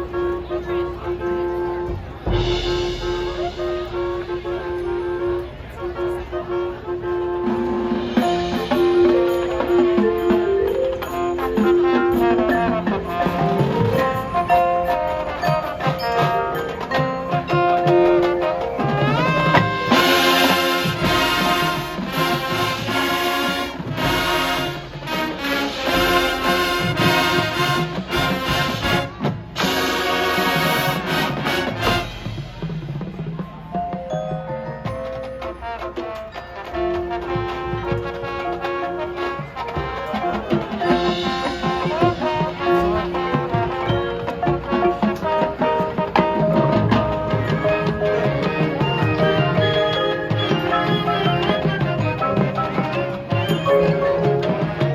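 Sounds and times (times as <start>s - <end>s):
brass holding chords: 0.0s - 32.6s
marching band playing: 0.0s - 54.9s.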